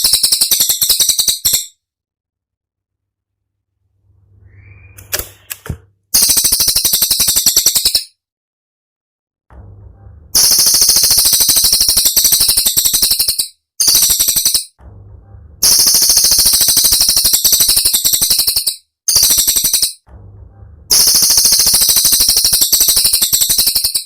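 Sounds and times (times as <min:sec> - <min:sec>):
songbird rapid trill: 0:20.9 - 0:24.0.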